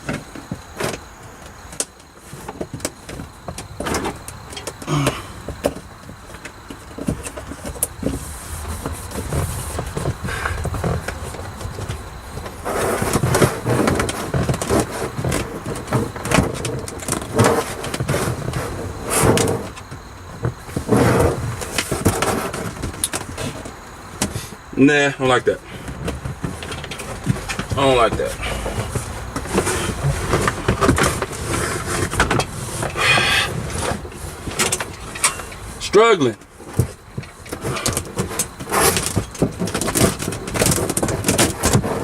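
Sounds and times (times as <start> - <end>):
mat rustling and crinkling: 0.0 - 42.0.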